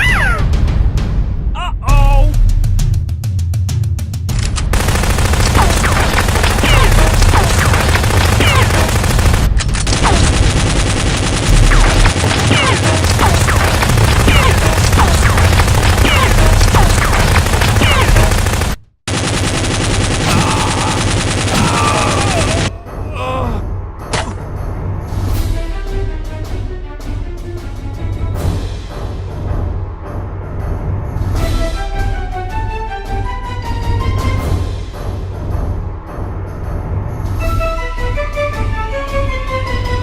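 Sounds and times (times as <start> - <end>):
automatic gunfire: 4.7 - 22.7.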